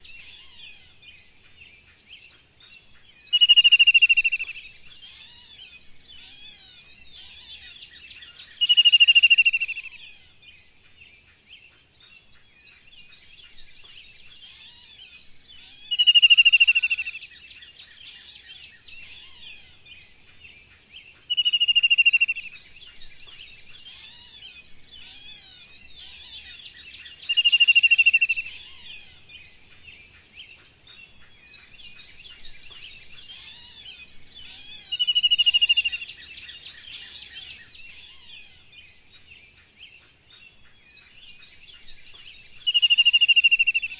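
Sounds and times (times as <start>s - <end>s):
chorus of small bird chirps: 0.0s - 43.9s
loud whistled bird call: 3.3s - 4.7s, 8.6s - 10.0s, 15.9s - 17.3s, 21.3s - 22.4s, 27.2s - 28.6s, 42.7s - 43.9s.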